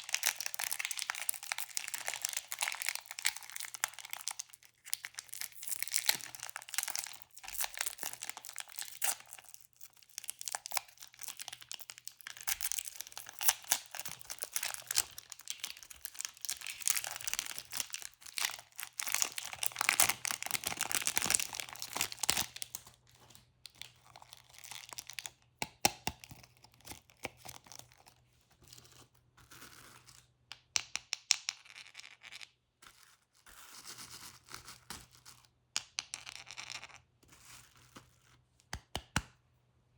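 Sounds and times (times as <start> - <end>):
plastic wrappers crinkling: 0.0 - 22.9.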